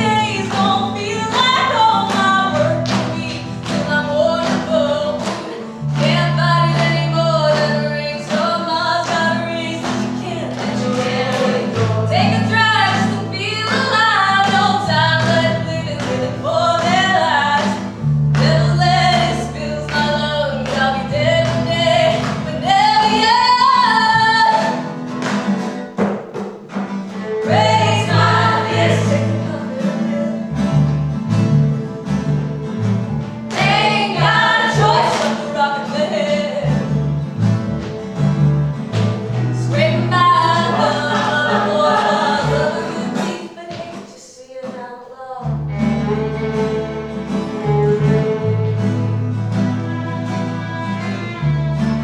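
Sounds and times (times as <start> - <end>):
voices singing with instruments: 0.0 - 24.9, 27.0 - 30.8, 31.8 - 48.6
bass notes: 5.8 - 24.5, 27.2 - 43.1.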